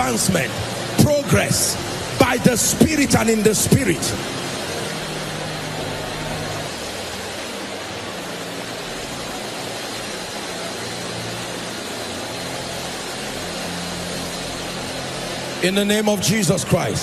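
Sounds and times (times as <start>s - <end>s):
congregation praying aloud: 0.0s - 4.9s.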